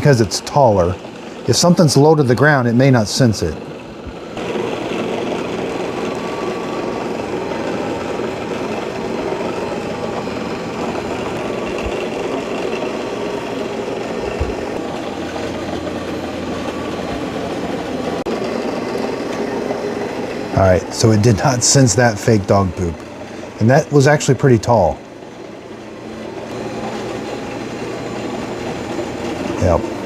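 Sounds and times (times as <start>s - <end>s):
robot vacuum running on carpet: 0.0s - 30.0s.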